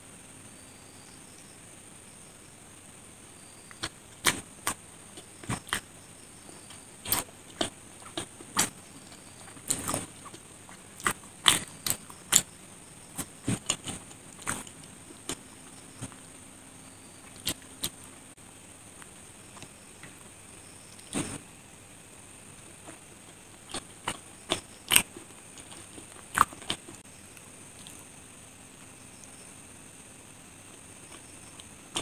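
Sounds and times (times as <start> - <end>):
chewing with wet mouth clicks: 9.4 - 12.5, 22.8 - 28.1.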